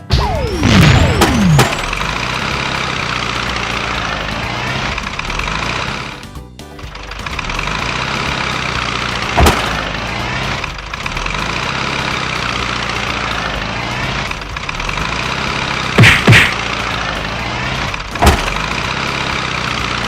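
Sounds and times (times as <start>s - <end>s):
loud hits: 0.0s - 2.9s, 16.0s - 16.7s
truck engine running: 0.0s - 20.0s.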